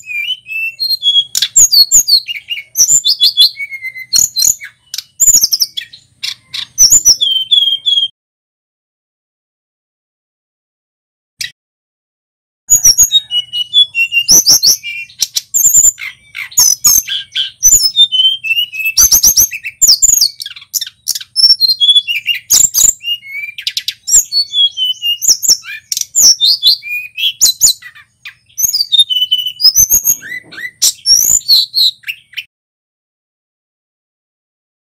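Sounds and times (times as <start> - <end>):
bird singing whistles and chirps: 0.0 - 8.1, 12.7 - 32.5.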